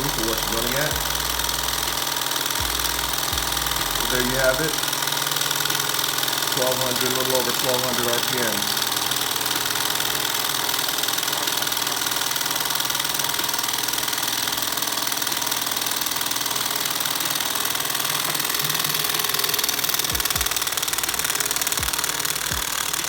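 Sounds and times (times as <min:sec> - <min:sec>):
low thumps: 0:00.0 - 0:04.3
small stirling engine running: 0:00.0 - 0:23.0.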